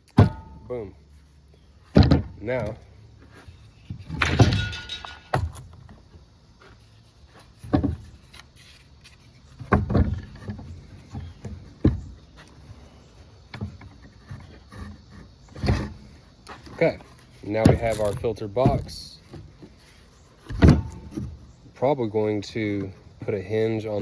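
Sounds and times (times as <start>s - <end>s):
box knocking and clunking: 0.1s - 0.6s, 1.9s - 2.8s, 7.6s - 8.1s, 9.6s - 12.3s, 17.5s - 19.8s, 20.5s - 21.5s.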